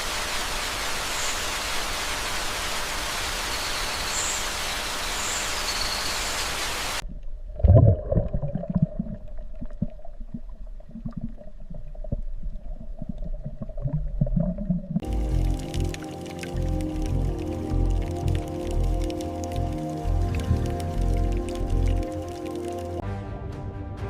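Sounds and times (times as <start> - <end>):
low underwater rumbles: 7.0 - 23.0
music: 15.0 - 24.0.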